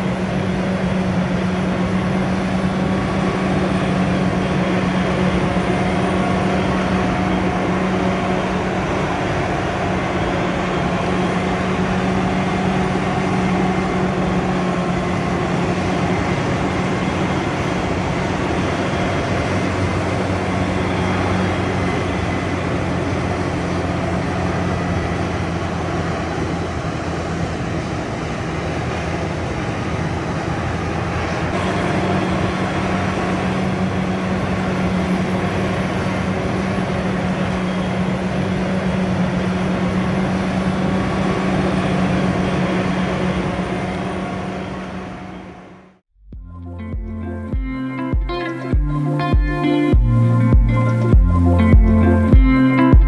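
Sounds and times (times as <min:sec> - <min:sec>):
low hum: 0:00.0 - 0:53.0
tractor engine running: 0:00.0 - 0:53.0.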